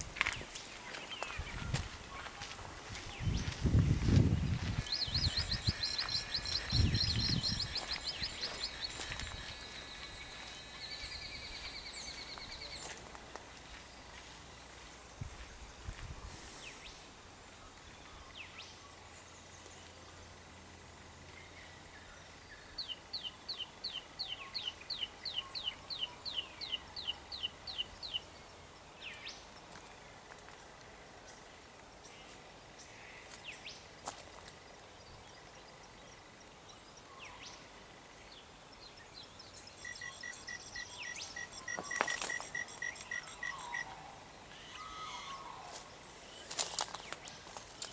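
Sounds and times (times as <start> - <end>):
buzzing cricket-like stutter: 4.8 - 12.2, 39.8 - 43.8.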